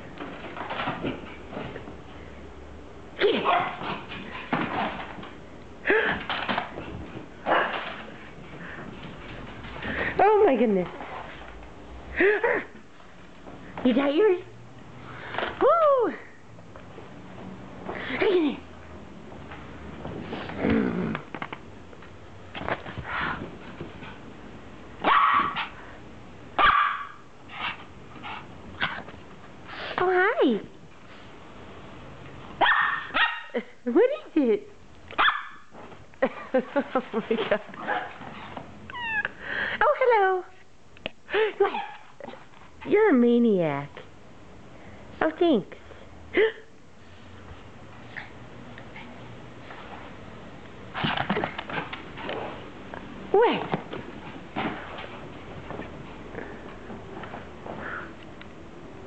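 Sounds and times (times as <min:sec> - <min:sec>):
dog barking: 0:03.3 - 0:03.8, 0:25.0 - 0:25.8, 0:26.6 - 0:27.2, 0:32.6 - 0:33.6, 0:35.1 - 0:35.7.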